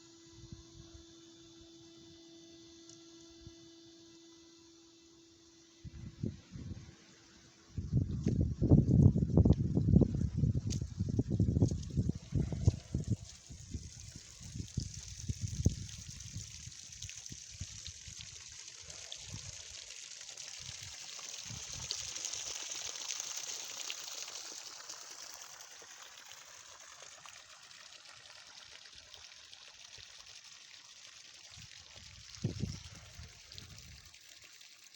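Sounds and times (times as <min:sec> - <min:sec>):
water streaming and splashing: 0:08.2 - 0:34.9.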